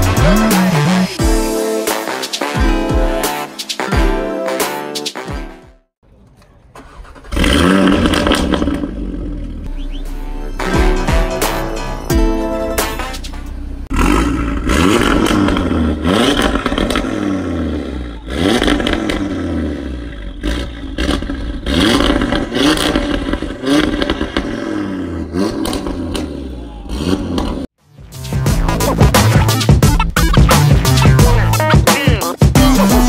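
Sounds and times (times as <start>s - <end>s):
car engine accelerating hard: 13.8s - 27.7s.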